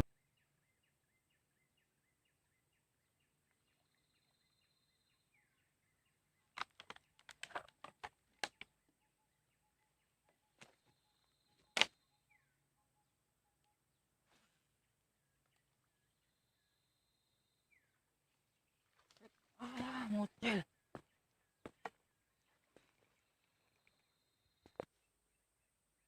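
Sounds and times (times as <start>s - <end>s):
faint chirps: 8.5s - 25.8s.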